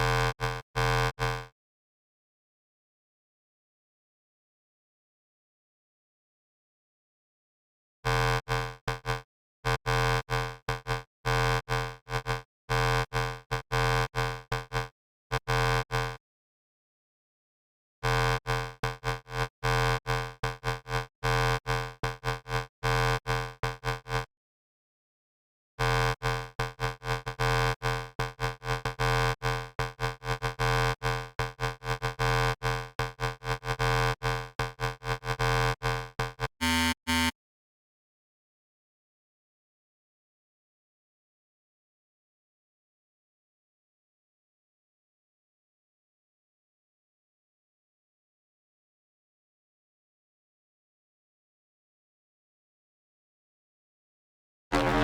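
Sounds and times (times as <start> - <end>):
buzzy synthesizer notes: 54.7 - 55.0.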